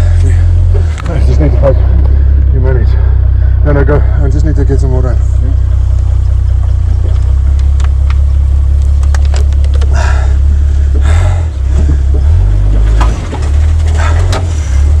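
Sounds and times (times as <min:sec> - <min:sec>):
vehicle engine droning: 0:00.0 - 0:15.0
rattles and knocks from cab: 0:08.9 - 0:10.2, 0:10.8 - 0:15.0.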